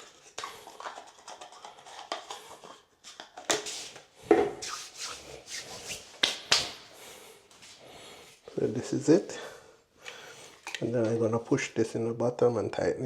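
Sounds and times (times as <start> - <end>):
hands rubbing and scraping parts: 0.0 - 6.9.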